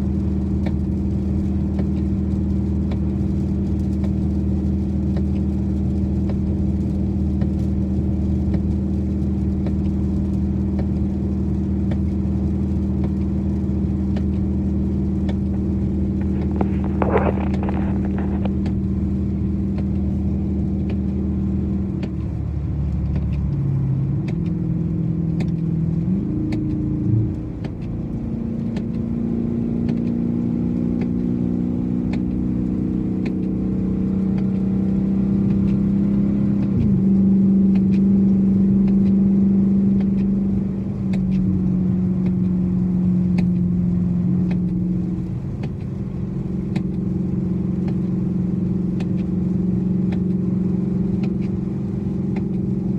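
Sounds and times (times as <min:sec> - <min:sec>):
car engine changing speed: 0:00.0 - 0:52.9
road rumble: 0:00.0 - 0:52.9
faint ticks: 0:00.2 - 0:23.6, 0:25.3 - 0:29.1, 0:44.4 - 0:52.8.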